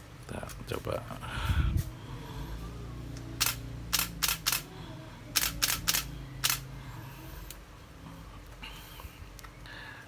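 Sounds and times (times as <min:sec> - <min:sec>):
camera shutter clicks: 0:03.4 - 0:04.6, 0:05.4 - 0:06.6.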